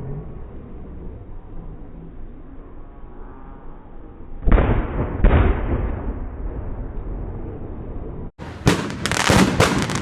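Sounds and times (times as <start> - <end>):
firework shells booming: 8.4 - 10.0.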